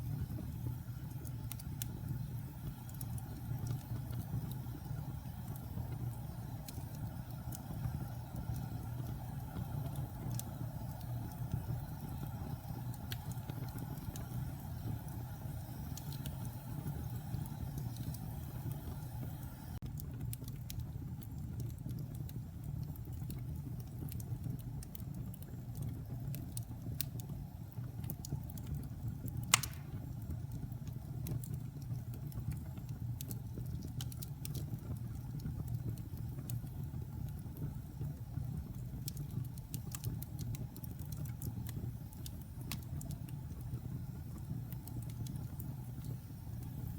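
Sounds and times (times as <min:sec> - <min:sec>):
burning wood crackling: 0:00.0 - 0:46.9
fireplace flames roaring: 0:00.0 - 0:46.9
loud sharp pop of burning wood: 0:29.5 - 0:30.2.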